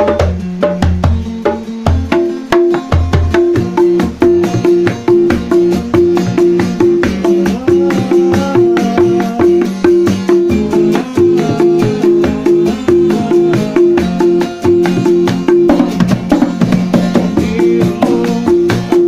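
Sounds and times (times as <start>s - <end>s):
hand drums beating: 0.0s - 19.0s
melody line: 3.6s - 16.2s.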